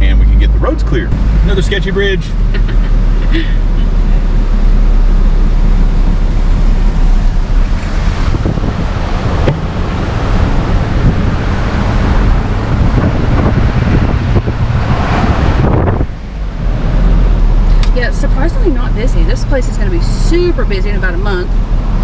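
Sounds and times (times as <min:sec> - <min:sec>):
truck engine drone: 0:00.0 - 0:22.0
tyre and road rumble: 0:00.0 - 0:22.0
wind rushing: 0:04.2 - 0:17.7.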